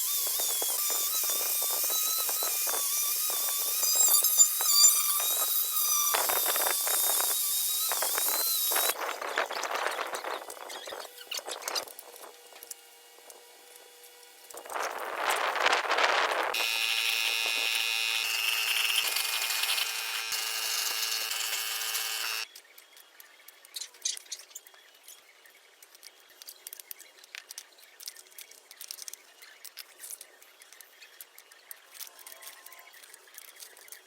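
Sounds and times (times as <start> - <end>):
power tool whining: 0.0 - 9.0, 16.4 - 22.5.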